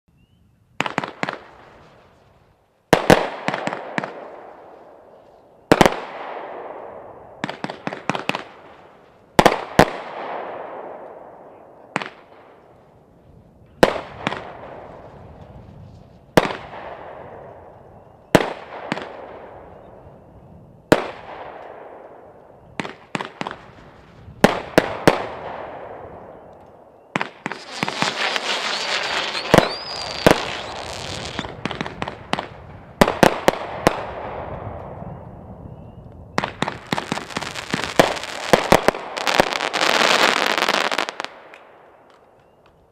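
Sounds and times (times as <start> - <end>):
fireworks bangs: 13.8 - 17.7, 18.3 - 19.7, 20.9 - 26.3, 27.1 - 35.0, 36.3 - 42.2
fireworks crackling: 27.2 - 35.0, 36.4 - 42.2.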